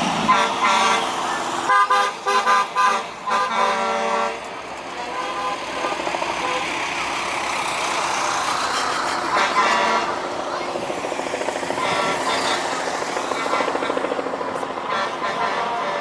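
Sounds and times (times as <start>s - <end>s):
rumble of passing trucks: 0.0s - 16.0s
truck air horns tooting: 0.1s - 7.0s, 8.8s - 10.3s, 11.7s - 14.0s, 14.8s - 16.0s.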